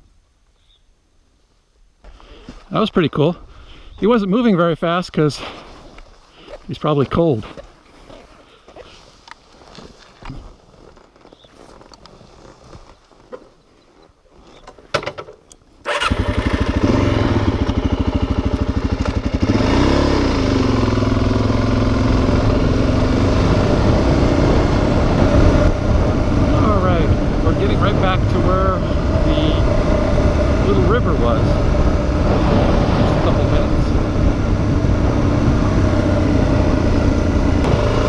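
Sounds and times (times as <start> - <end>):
motorcycle engine starting and revving: 15.8 - 38.0.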